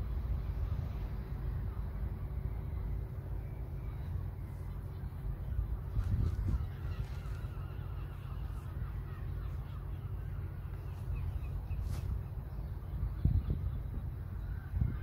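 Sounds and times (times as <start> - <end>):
steady low rumble: 0.0 - 15.0
birds cawing: 3.8 - 15.0.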